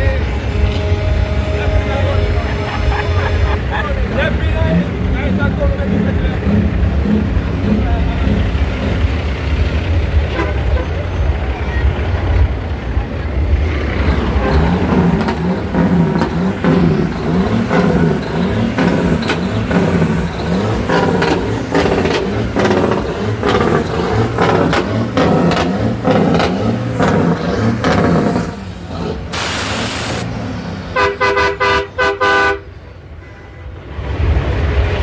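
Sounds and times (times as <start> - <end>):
short horn toots: 0.0 - 3.8, 10.3 - 11.2, 31.0 - 33.8
truck engine running: 0.0 - 33.0
air hiss: 29.3 - 30.3.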